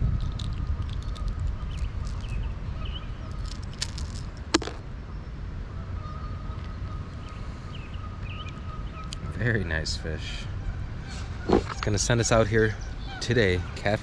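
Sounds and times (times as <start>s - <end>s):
wind on microphone: 0.0s - 4.6s.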